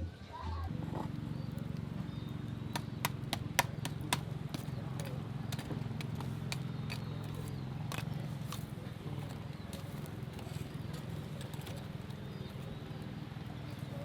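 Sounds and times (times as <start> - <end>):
sharp knocks: 2.6 - 7.0.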